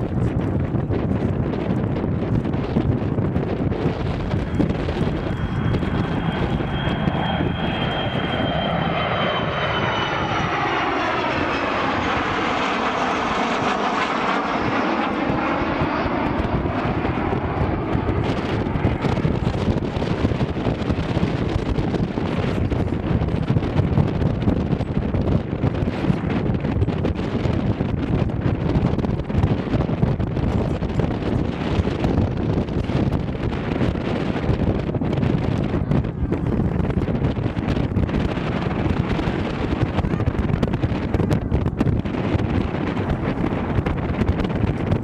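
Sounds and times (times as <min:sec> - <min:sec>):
aircraft flying past: 0:00.0 - 0:45.0
high whine falling in pitch: 0:03.5 - 0:19.8.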